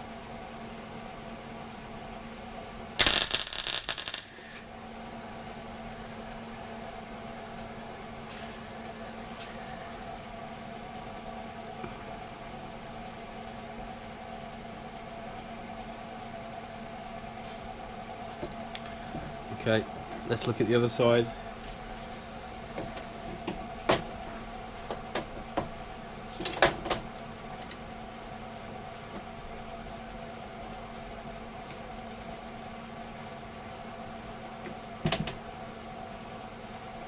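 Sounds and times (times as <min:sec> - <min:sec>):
welder arc crackling: 0:03.0 - 0:04.6.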